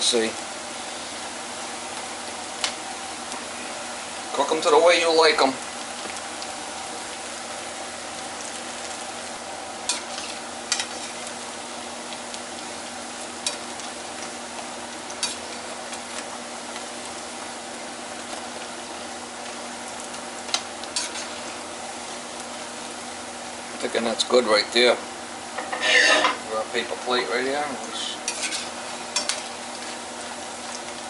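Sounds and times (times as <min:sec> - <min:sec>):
food frying in hot oil: 0:00.0 - 0:31.0
metal spatula scraping a pan: 0:09.9 - 0:11.3, 0:21.0 - 0:21.6, 0:25.6 - 0:26.4, 0:28.3 - 0:29.5.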